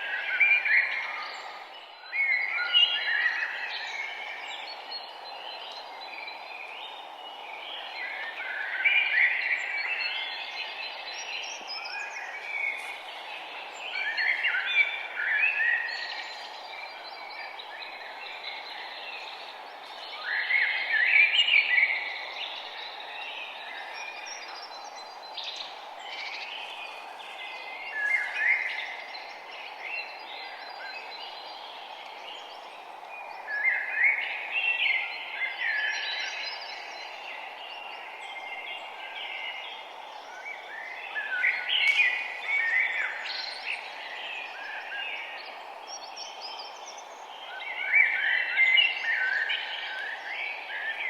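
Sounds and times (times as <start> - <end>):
songbirds singing: 0.0 - 51.0
steady background hiss: 0.0 - 51.0.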